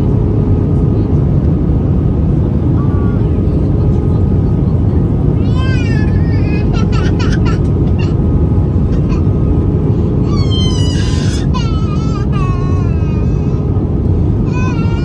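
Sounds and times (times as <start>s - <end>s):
airplane cabin engine rumble: 0.0s - 15.0s
infant crying: 5.4s - 9.4s, 10.2s - 13.7s, 14.4s - 15.0s.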